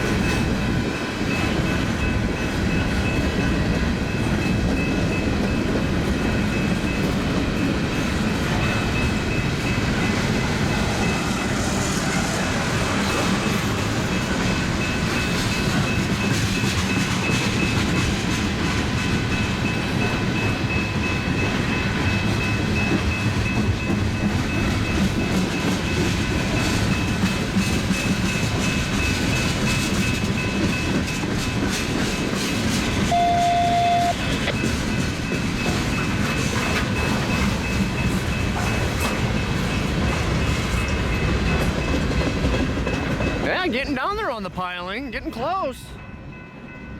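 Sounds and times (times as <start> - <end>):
freight train rumbling past: 0.0 - 46.9
short tone: 33.1 - 34.6.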